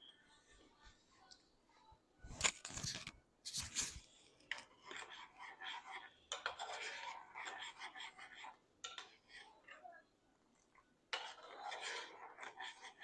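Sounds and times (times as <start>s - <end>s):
utensil scraping cookware: 11.2s - 13.0s.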